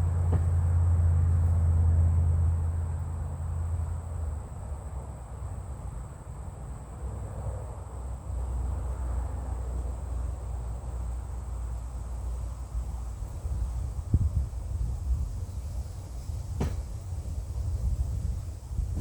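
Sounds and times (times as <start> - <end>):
insects droning: 0.0 - 19.0
wind rumbling on microphone: 12.8 - 19.0.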